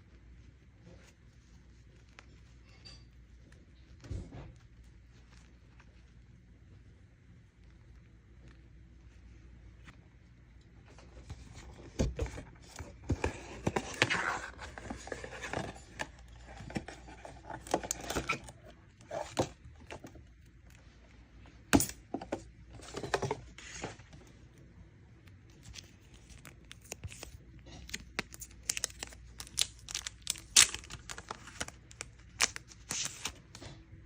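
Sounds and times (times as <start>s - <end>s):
packaging rustling: 25.3s - 33.7s.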